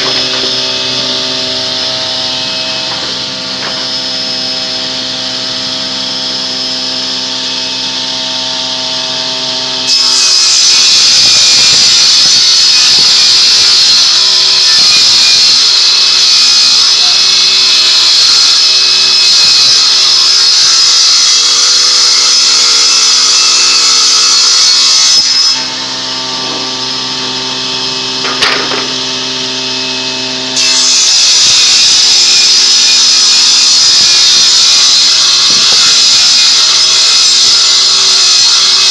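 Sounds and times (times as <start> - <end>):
saw cutting into wood: 0.0 - 8.4, 9.2 - 38.9
power saw motor hum: 0.0 - 9.8, 22.5 - 30.6.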